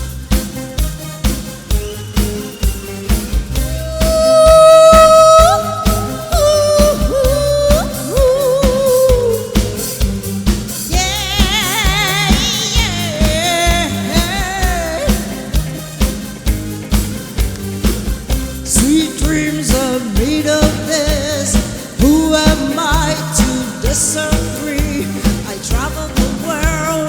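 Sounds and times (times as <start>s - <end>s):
live pop band: 0.0s - 27.0s
person singing with vibrato: 3.6s - 16.1s, 18.6s - 27.0s.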